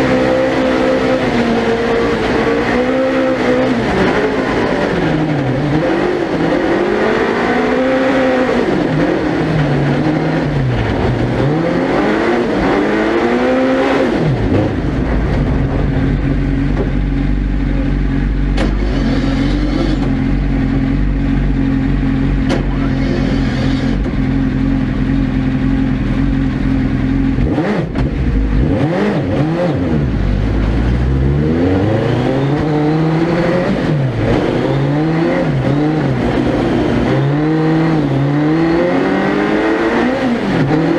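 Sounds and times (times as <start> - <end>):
racing car engine revving: 0.0 - 40.9.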